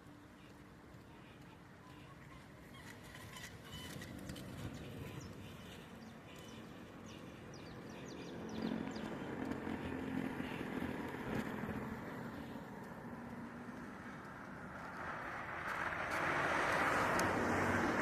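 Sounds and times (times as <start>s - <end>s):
vehicle engine hum: 0.0s - 18.0s
small birds chirping: 0.2s - 11.5s.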